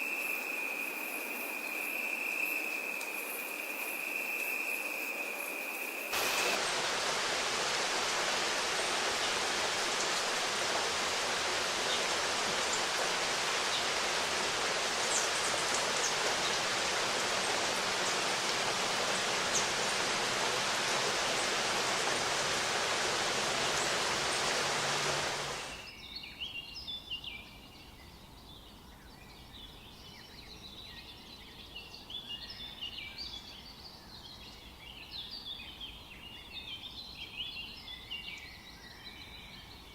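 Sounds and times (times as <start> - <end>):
rushing water: 0.0 - 25.9.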